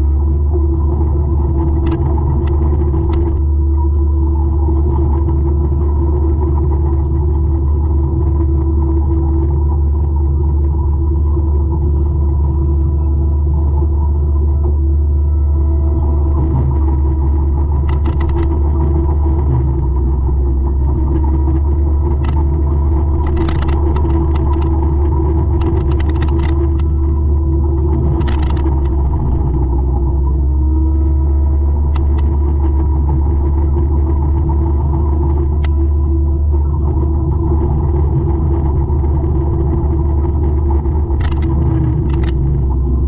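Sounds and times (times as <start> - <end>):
sharp cracks and clicks: 1.8 - 3.4, 17.8 - 18.6, 22.1 - 27.0, 28.0 - 29.5, 31.9 - 32.4, 41.0 - 42.7.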